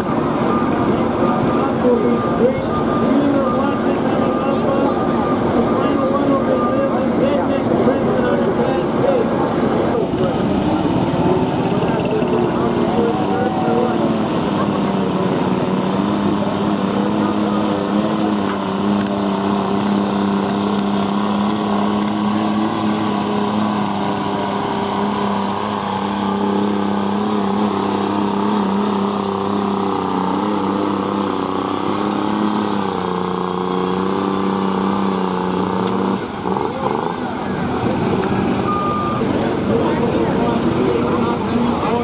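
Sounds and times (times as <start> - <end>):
small tractor engine running: 0.0 - 42.0.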